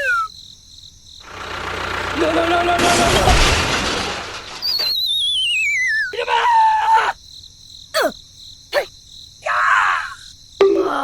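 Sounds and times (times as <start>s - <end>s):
voice-like cries: 6.0s - 7.2s, 8.0s - 11.0s.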